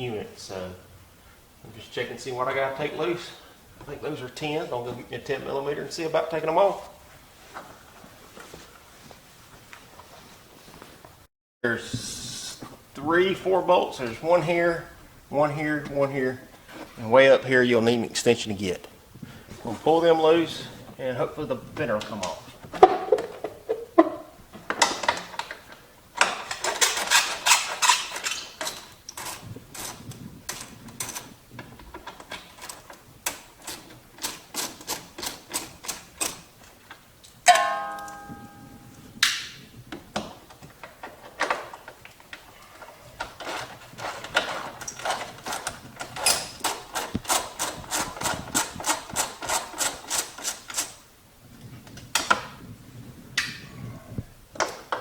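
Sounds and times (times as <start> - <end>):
metallic clang: 37.5 - 39.1.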